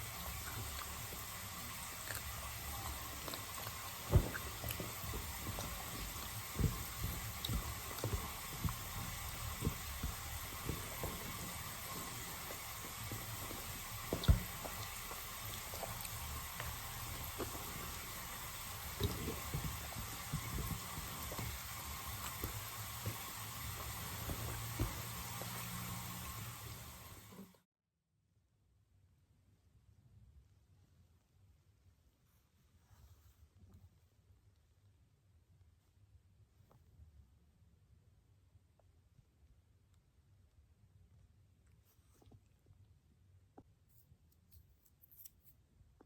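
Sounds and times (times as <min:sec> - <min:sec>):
soft low thumps: 0:00.0 - 0:26.8
steady hiss: 0:00.0 - 0:27.6.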